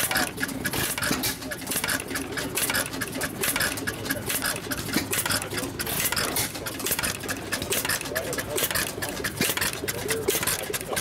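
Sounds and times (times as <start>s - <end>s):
stationary engine clattering: 0.0s - 11.0s.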